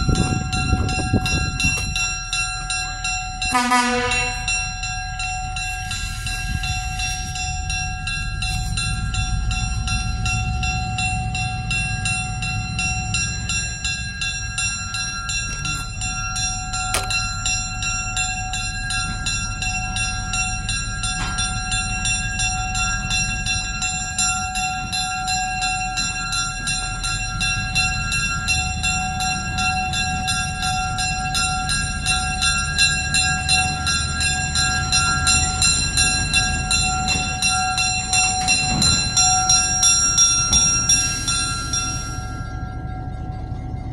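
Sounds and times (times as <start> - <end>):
crossing bell ringing: 0.0 - 43.9
train rumbling past: 0.0 - 43.9.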